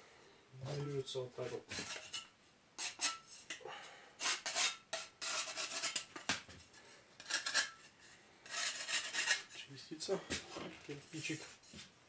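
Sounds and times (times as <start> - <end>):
brick being scraped: 4.2 - 6.1, 8.5 - 9.6.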